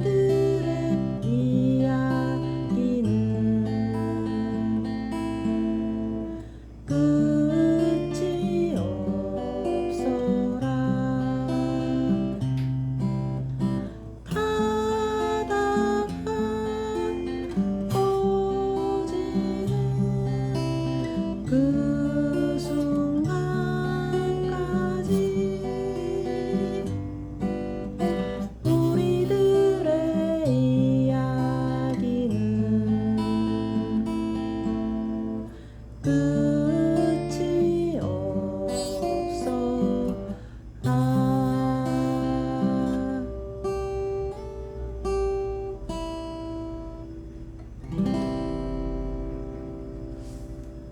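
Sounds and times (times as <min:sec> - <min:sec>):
acoustic guitar chords: 0:00.0 - 0:50.9.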